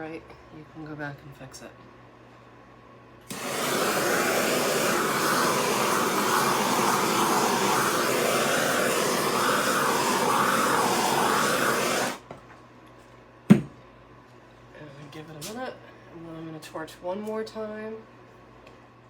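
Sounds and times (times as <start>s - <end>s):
torch flame blowing: 3.3s - 12.3s.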